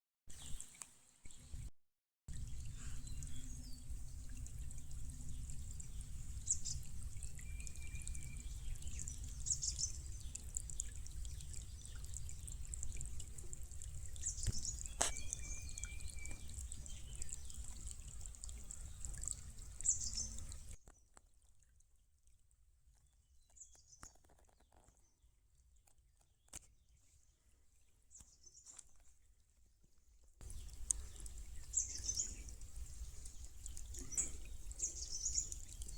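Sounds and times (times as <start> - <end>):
stream water trickling over rock: 2.3 - 35.9
birds chirping: 14.1 - 20.6, 30.5 - 35.9.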